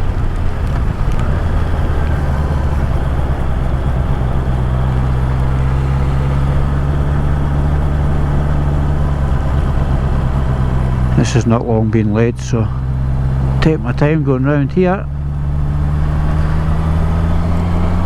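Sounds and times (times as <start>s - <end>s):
wind noise: 0.0s - 14.3s
motorcycle engine running: 0.0s - 18.0s
road noise: 0.0s - 18.0s.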